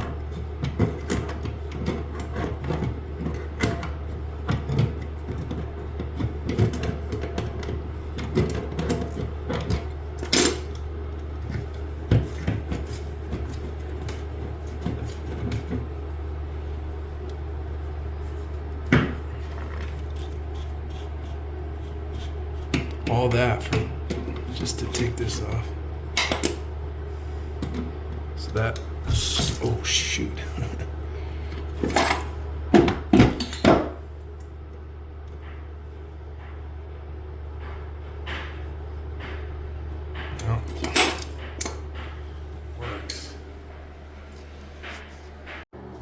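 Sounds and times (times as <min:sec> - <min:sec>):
steady low hum: 0:00.0 - 0:46.0
tools clicking and scraping on fittings: 0:40.3 - 0:41.8.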